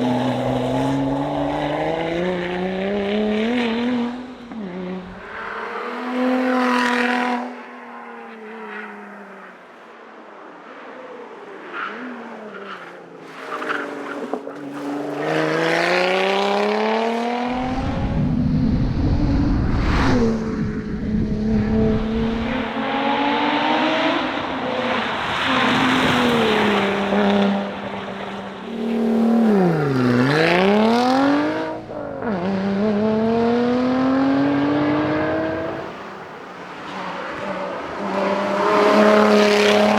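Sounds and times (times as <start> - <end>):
car engine revving through gears: 0.0 - 7.5, 13.7 - 18.5, 20.0 - 36.4, 37.3 - 39.9
deep rumble: 17.5 - 22.7.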